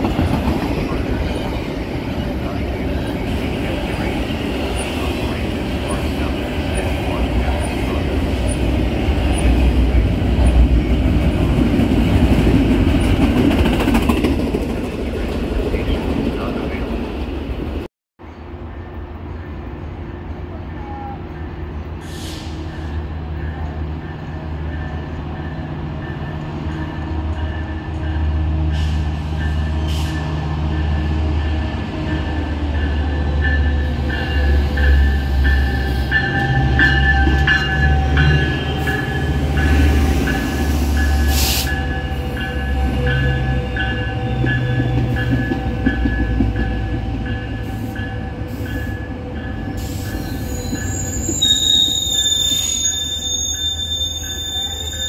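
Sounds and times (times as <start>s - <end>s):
train engine rumble: 0.0s - 55.0s
train bell ringing: 22.8s - 28.5s, 29.2s - 55.0s
brake squeal: 49.8s - 55.0s.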